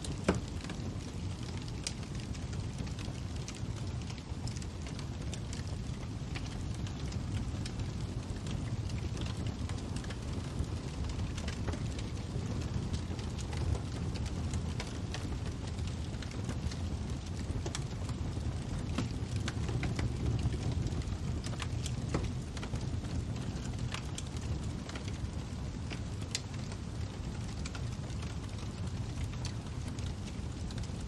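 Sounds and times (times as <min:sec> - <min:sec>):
fire crackling and popping: 0:00.0 - 0:31.0.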